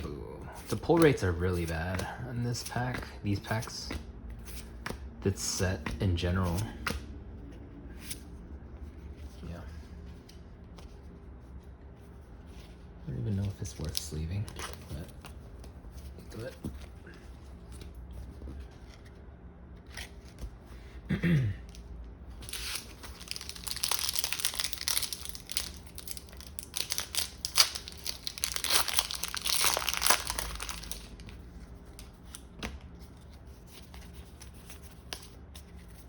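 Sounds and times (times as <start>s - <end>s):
foil wrapper tearing and crinkling: 22.5s - 31.3s.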